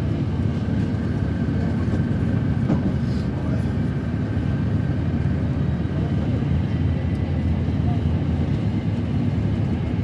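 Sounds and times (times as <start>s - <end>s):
airliner cabin drone: 0.0s - 10.0s.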